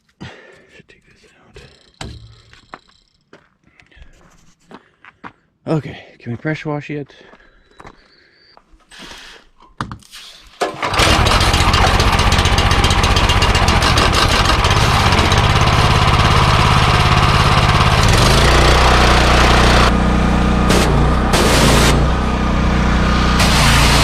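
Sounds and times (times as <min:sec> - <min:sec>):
pressure washer engine running: 0:10.7 - 0:24.0.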